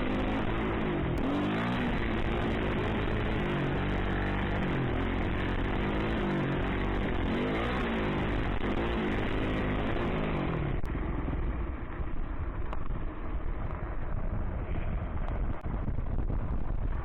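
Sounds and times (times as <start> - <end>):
dirt bike engine revving: 0.0 - 10.9.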